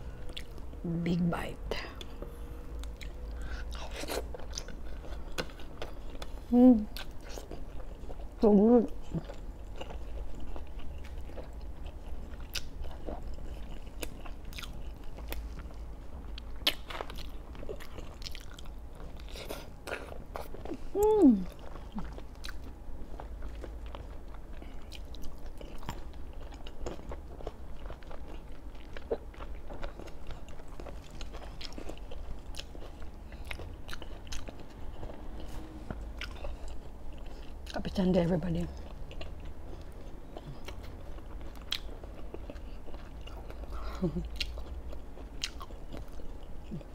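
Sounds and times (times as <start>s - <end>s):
close-miked chewing: 0.1s - 46.9s
person humming: 20.9s - 21.5s.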